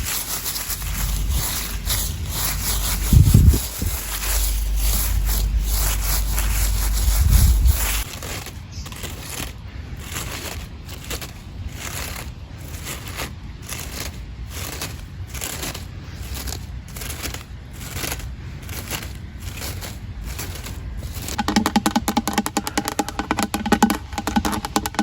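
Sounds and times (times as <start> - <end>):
rhythmic crunching strokes: 0.0 - 8.3, 20.5 - 25.0.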